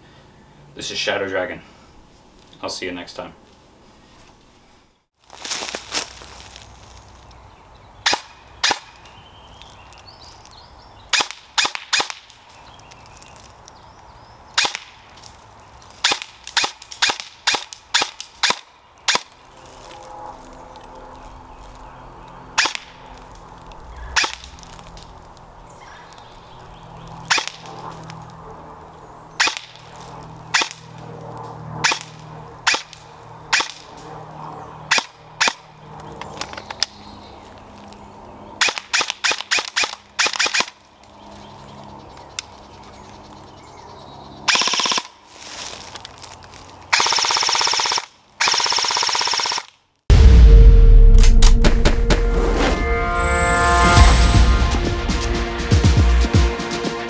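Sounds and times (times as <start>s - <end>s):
airsoft guns firing: 47.0s - 49.7s.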